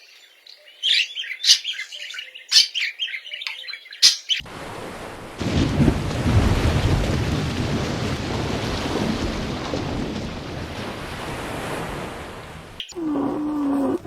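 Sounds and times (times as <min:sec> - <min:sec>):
thunder rolling: 0:04.4 - 0:13.7
steady rain: 0:04.4 - 0:14.0.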